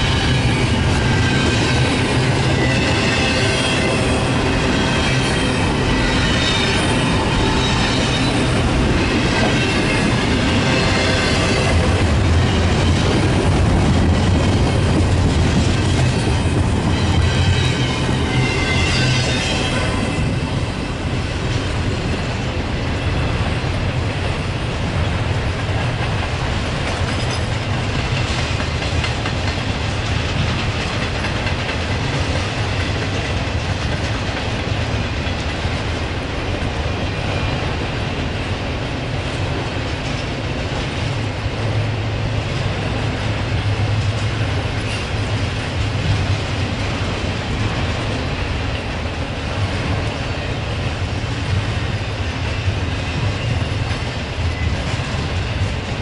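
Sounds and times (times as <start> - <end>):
freight train cars rumbling: 0.0 - 56.0.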